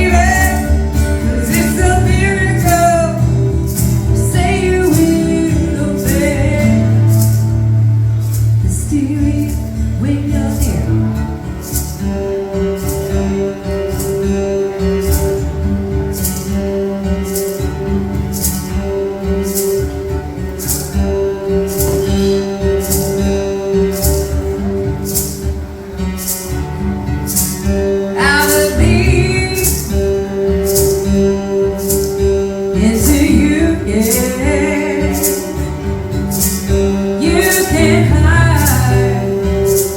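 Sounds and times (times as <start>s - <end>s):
person singing: 0.0s - 7.6s, 28.2s - 31.0s, 32.6s - 39.9s
high percussive shaker: 0.0s - 39.9s.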